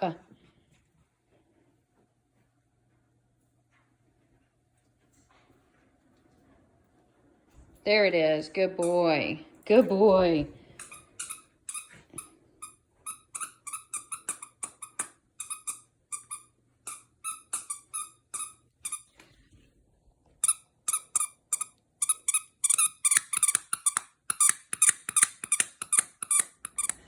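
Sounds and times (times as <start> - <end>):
squeaky toy squeaking: 10.8 - 19.1, 20.4 - 27.0.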